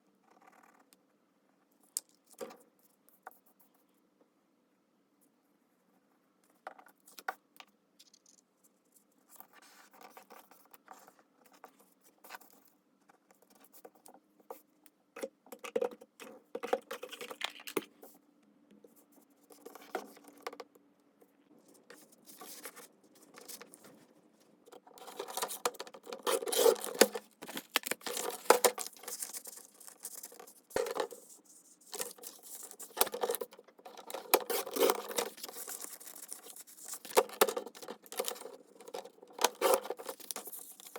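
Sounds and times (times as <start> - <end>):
paper rustling and crinkling: 21.8 - 40.9.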